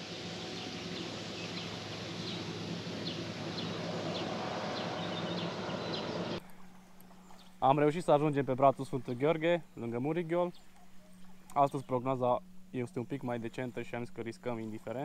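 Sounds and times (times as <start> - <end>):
outdoor hiss: 0.0 - 6.5
steady low hum: 0.0 - 15.0.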